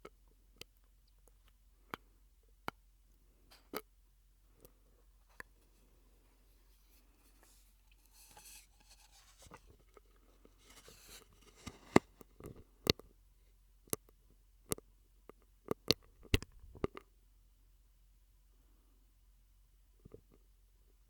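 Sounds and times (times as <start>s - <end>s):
wet mouth clicks and pops: 15.8s - 17.0s.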